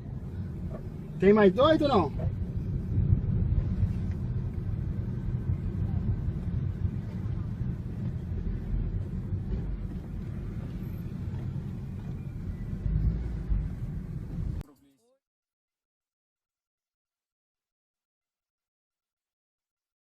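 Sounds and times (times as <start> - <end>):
car engine rumble: 0.0 - 14.6
road noise: 0.0 - 14.6.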